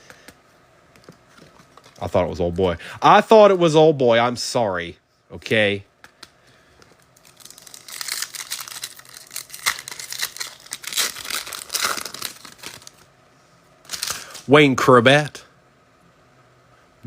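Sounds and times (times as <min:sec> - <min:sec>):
foil wrapper tearing and crinkling: 0:07.0 - 0:13.1, 0:13.8 - 0:14.5.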